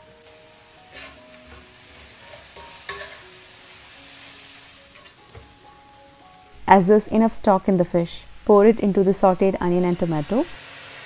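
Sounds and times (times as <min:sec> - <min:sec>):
onions and tomatoes sizzling in pan: 0:00.0 - 0:11.0
sharp utensil clink: 0:02.9 - 0:03.2.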